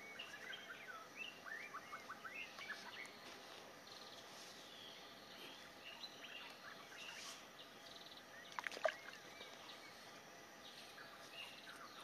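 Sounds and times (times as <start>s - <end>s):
birds chirping: 0.0s - 12.0s
low steady hiss: 0.0s - 12.0s.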